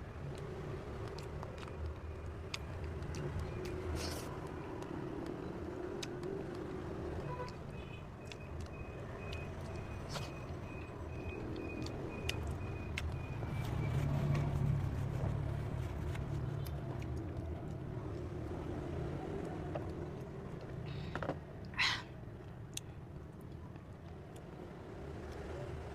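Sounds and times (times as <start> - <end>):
road traffic rumble: 0.0 - 25.9.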